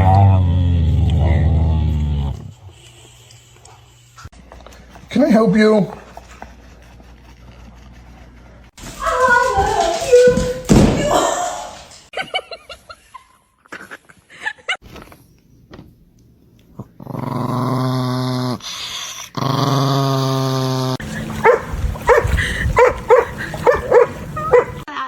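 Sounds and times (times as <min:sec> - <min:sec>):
dog growling: 0:00.0 - 0:02.7, 0:16.7 - 0:24.9
dog calling: 0:21.0 - 0:24.9
dog barking: 0:21.4 - 0:24.9.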